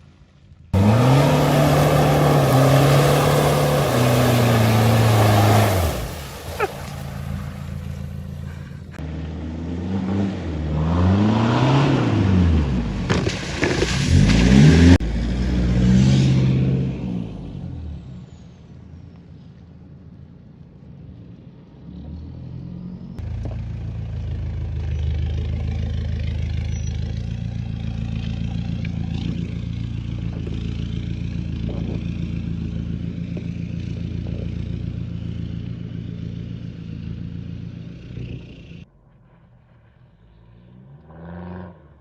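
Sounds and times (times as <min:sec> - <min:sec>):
diesel engine exhaust drone: 0:00.0 - 0:11.1, 0:22.9 - 0:42.0.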